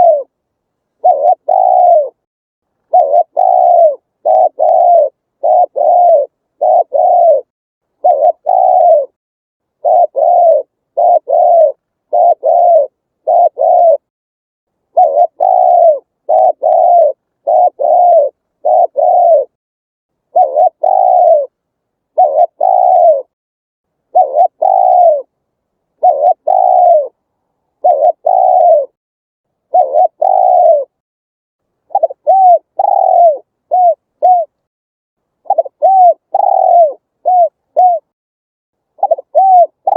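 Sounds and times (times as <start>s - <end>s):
dove cooing: 0.0s - 0.4s, 1.0s - 2.2s, 2.9s - 9.2s, 9.8s - 14.1s, 14.9s - 19.6s, 20.3s - 23.4s, 24.1s - 25.3s, 26.0s - 29.0s, 29.7s - 31.0s, 31.9s - 34.6s, 35.4s - 38.1s, 39.0s - 39.9s.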